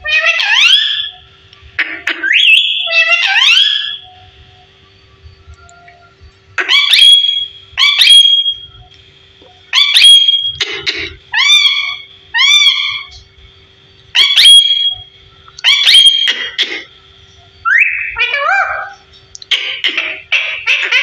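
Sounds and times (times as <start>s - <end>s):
parrot calling loudly: 0.0s - 1.2s, 1.8s - 4.0s, 6.6s - 8.5s, 9.7s - 13.2s, 14.2s - 15.0s, 15.6s - 16.9s, 17.6s - 21.0s.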